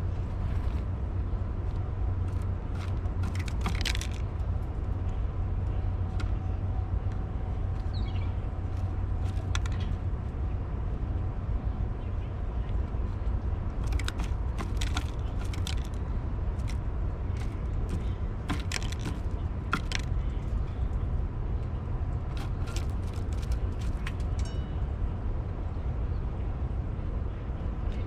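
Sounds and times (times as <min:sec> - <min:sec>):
steady low rumble: 0:00.0 - 0:28.0
bird pecking at seed: 0:02.3 - 0:04.4, 0:13.8 - 0:16.0, 0:16.6 - 0:20.7, 0:22.3 - 0:24.3.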